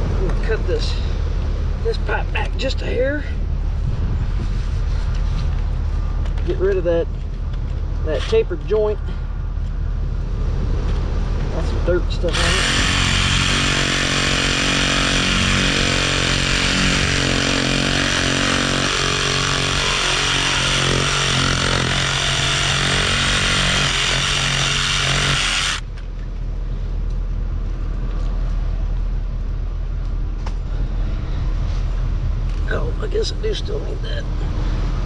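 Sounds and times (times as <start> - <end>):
low engine rumble: 0.0 - 35.0
reciprocating saw cutting pipe: 12.2 - 25.8.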